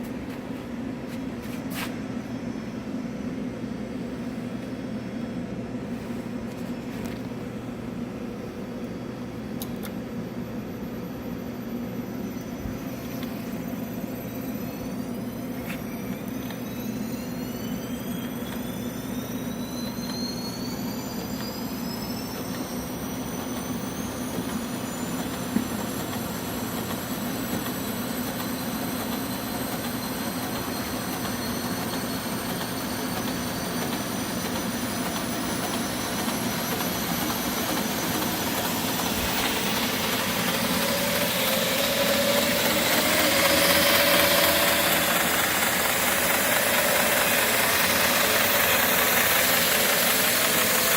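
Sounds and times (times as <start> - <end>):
belt grinder whining: 15.3 - 50.9.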